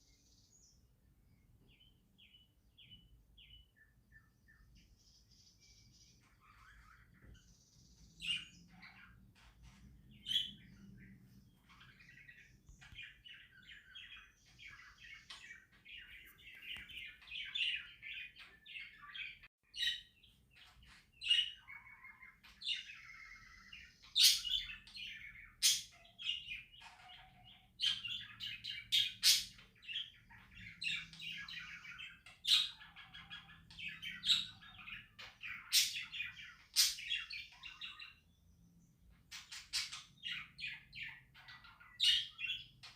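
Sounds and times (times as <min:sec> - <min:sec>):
budgerigars chattering: 0:11.7 - 0:38.2.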